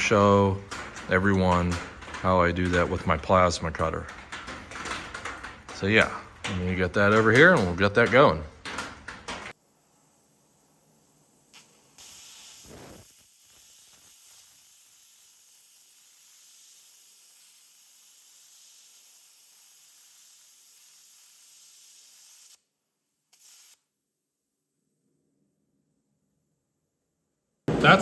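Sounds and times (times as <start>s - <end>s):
plasma cutter hissing: 9.5s - 22.6s.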